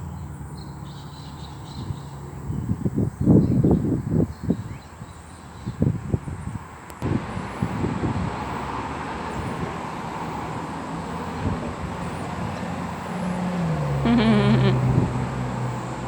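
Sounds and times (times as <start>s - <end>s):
passing road traffic: 0.0s - 16.0s
vehicle engine low hum: 7.0s - 16.0s.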